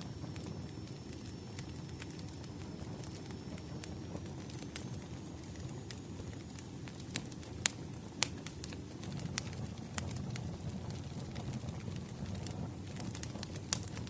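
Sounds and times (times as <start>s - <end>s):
fire popping: 0.0s - 14.0s
low rumble of burning logs: 0.0s - 14.0s.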